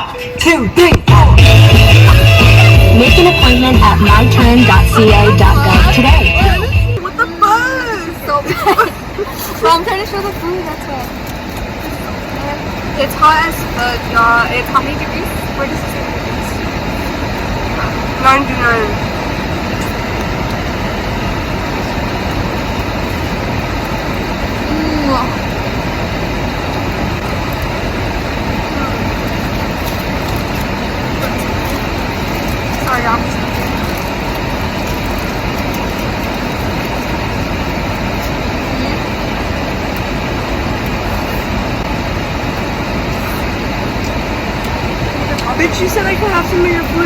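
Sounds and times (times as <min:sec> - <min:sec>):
loud rushing noise inside a car: 0:00.0 - 0:47.0
low rumble: 0:00.8 - 0:07.0.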